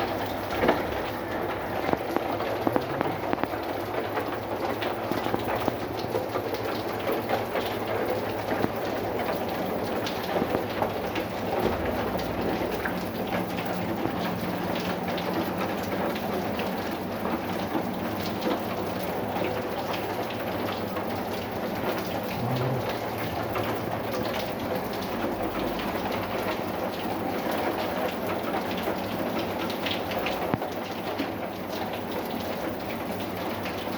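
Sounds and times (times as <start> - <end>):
raindrops ticking on hard surface: 0.0 - 33.9
steady rain: 0.0 - 33.9.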